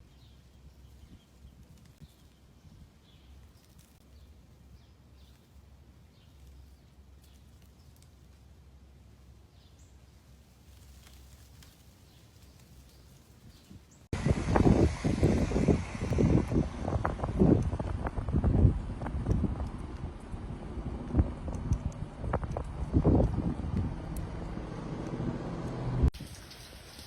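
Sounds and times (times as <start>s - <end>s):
bird chirping: 0.0s - 8.0s, 9.4s - 10.1s
low rumble: 14.0s - 26.2s.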